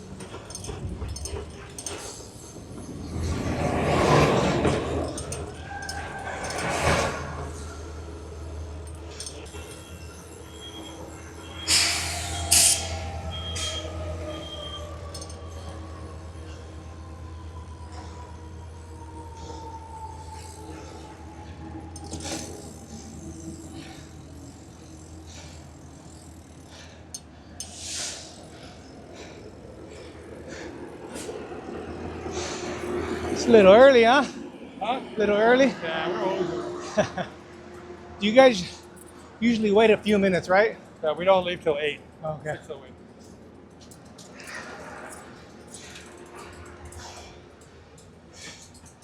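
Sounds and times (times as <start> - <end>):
train humming: 0.0 - 49.0
train air hisses: 11.1 - 14.8, 22.1 - 31.6, 32.2 - 33.4.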